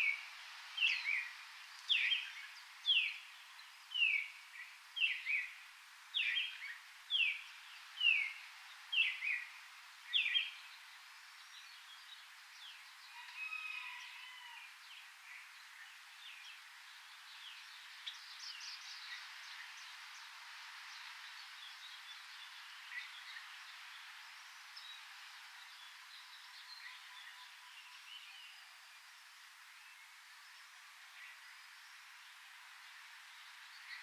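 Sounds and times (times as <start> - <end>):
steady forest hiss: 0.0 - 34.0
faint bird chirps: 20.9 - 29.0.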